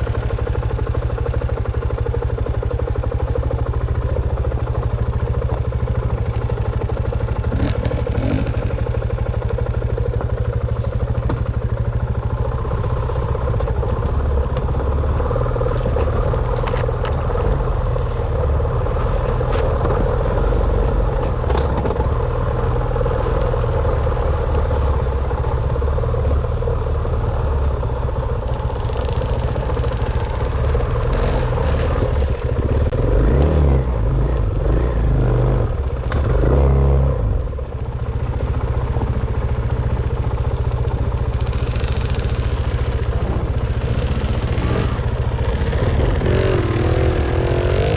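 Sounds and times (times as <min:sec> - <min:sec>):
dirt bike engine running: 0:00.0 - 0:47.9.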